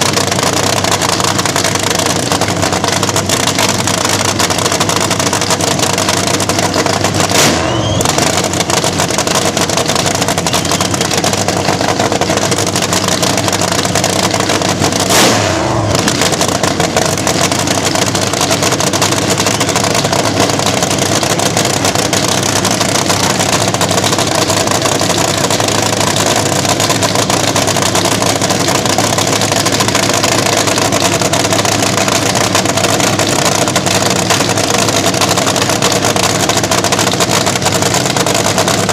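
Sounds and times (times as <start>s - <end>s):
drag racer engine running: 0.0s - 38.9s
engine blips: 6.1s - 26.8s.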